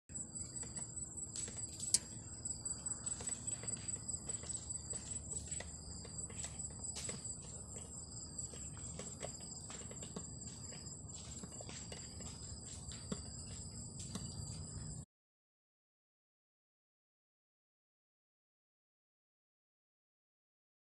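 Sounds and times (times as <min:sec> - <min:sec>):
insects chirping: 0:00.1 - 0:15.0.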